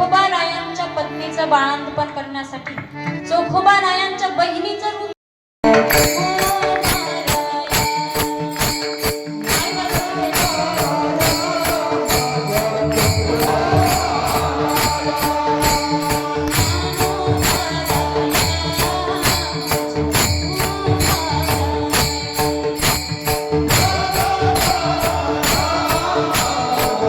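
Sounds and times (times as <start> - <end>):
jingling metallic percussion: 5.7 - 27.0
sustained held tones: 5.7 - 27.0.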